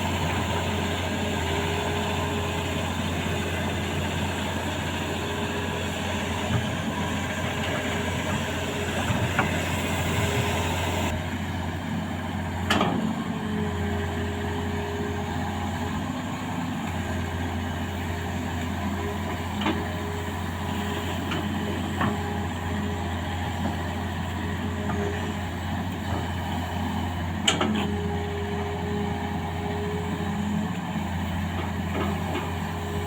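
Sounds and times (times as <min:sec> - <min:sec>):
excavator engine hum: 0:00.0 - 0:33.0.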